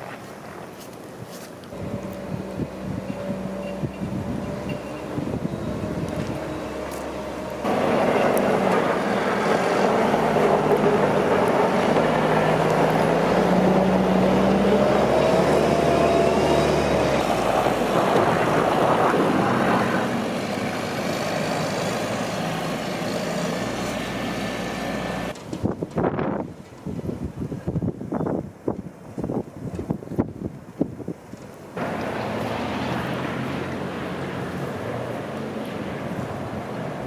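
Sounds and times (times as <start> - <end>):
road noise: 0.0 - 37.0
wind buffeting microphone: 1.7 - 21.2, 25.2 - 32.6
vehicle engine running: 1.8 - 25.3, 31.8 - 37.0.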